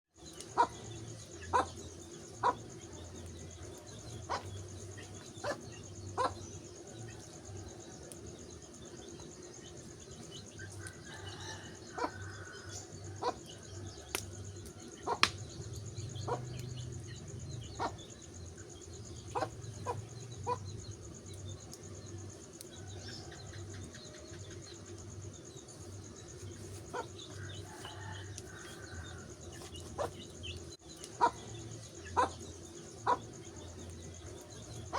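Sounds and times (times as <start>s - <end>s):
wood fire crackling: 0.2s - 34.9s
fire popping: 13.4s - 34.9s.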